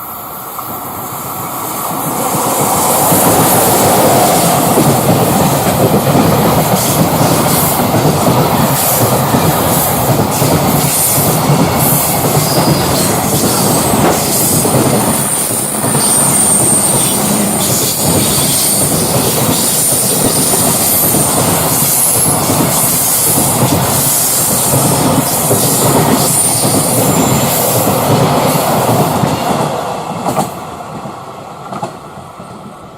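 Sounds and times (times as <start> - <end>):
freight train wheels clattering: 1.8 - 31.1
high wheel squeal: 14.4 - 22.4.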